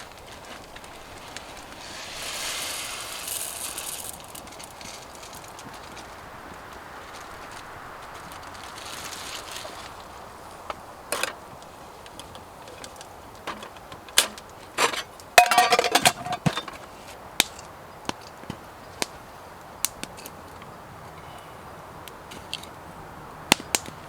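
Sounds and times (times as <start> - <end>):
wood fire crackling: 0.0 - 24.0
clattering: 13.5 - 16.8.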